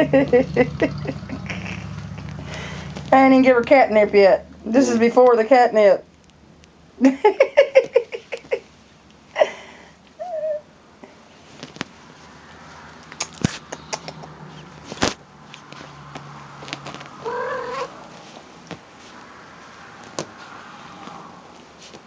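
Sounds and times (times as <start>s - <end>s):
cat chirp: 17.2s - 18.0s
cat meowing: 17.2s - 18.0s.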